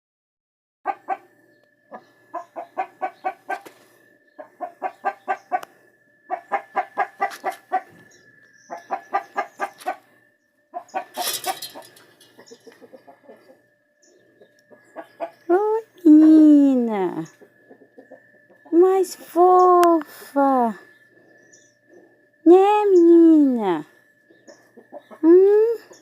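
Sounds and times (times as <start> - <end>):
chicken clucking: 0.9 - 10.1, 10.7 - 16.4, 17.1 - 19.0, 24.3 - 26.0
faint steady high tone: 7.9 - 26.0.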